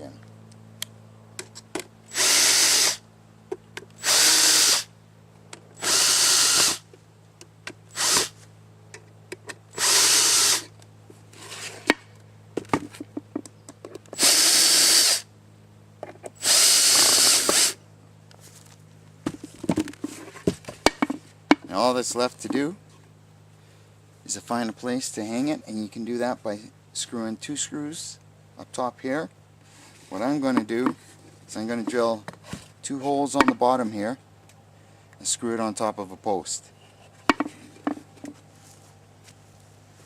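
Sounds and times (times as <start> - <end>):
power drill driving screws: 2.1 - 3.0, 4.0 - 4.9, 5.8 - 6.8, 7.9 - 8.4, 9.7 - 10.7, 14.2 - 15.2, 16.4 - 17.8.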